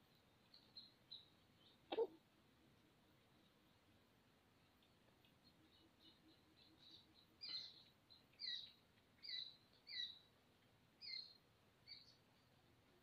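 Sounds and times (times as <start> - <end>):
bird chirping: 0.0 - 2.1, 4.6 - 10.4, 11.0 - 12.7
faint outdoor hiss: 0.0 - 13.0.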